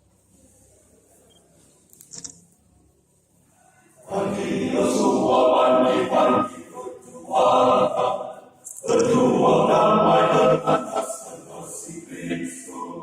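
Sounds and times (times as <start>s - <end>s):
men's choir singing: 4.0s - 13.0s.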